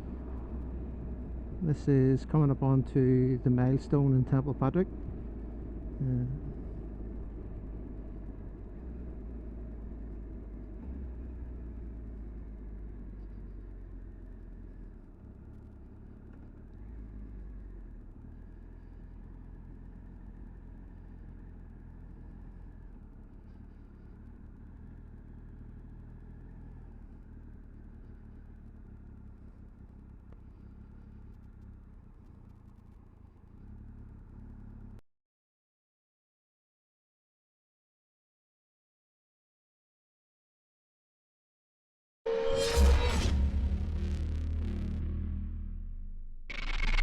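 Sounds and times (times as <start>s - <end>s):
motorcycle engine rumble: 0.0s - 35.0s
road noise: 0.0s - 35.0s, 42.3s - 47.0s.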